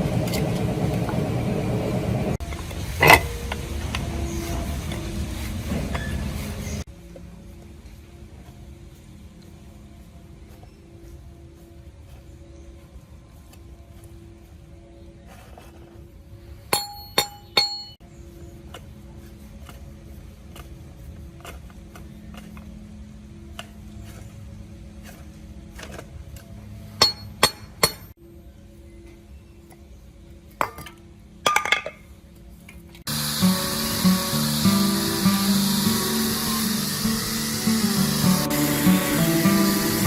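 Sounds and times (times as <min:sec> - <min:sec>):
faint background music: 0:00.0 - 0:40.0
metal parts clinking: 0:03.0 - 0:03.4
loud hissing noise: 0:33.1 - 0:40.0.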